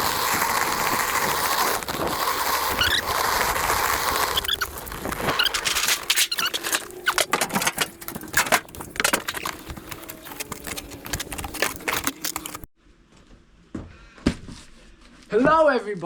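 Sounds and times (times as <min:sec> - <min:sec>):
hand trolley rattling and squeaking: 0:00.0 - 0:12.7.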